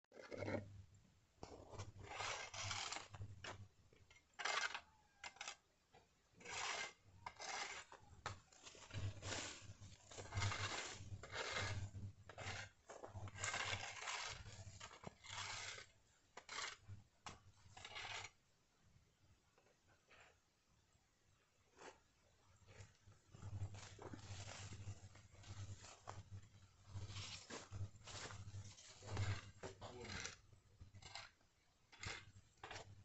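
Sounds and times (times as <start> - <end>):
hand tool scraping rough surface: 0.1 - 0.7, 1.4 - 5.6, 6.4 - 16.9, 17.6 - 18.4, 22.7 - 33.0.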